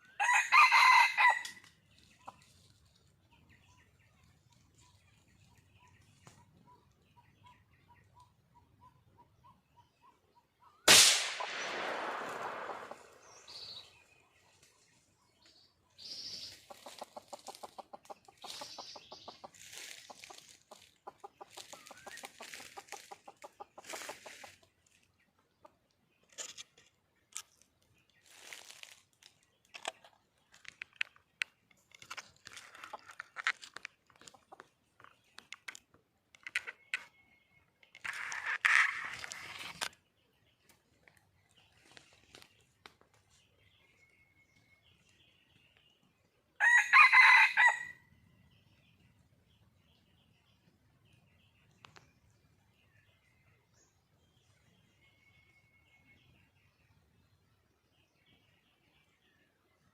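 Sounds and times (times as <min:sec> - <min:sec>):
loud burst: 0:10.9 - 0:13.2
hen clucking: 0:16.4 - 0:24.7.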